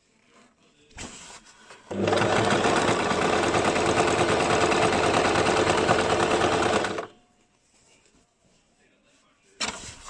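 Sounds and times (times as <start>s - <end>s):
sewing machine stitching: 1.9s - 7.1s.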